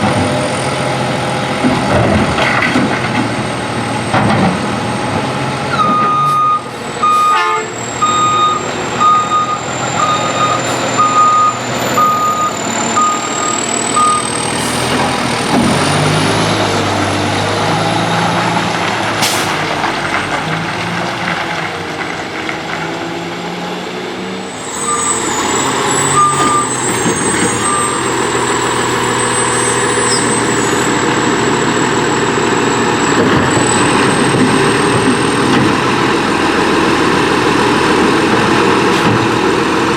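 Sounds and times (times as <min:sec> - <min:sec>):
diesel engine revving: 0:00.0 - 0:39.9
truck backup alarm beeping: 0:05.7 - 0:15.0, 0:24.5 - 0:35.4.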